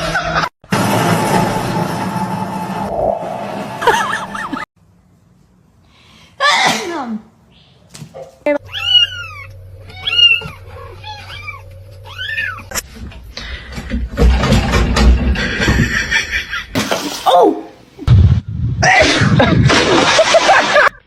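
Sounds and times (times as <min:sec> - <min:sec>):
cat meowing: 0:08.6 - 0:12.7.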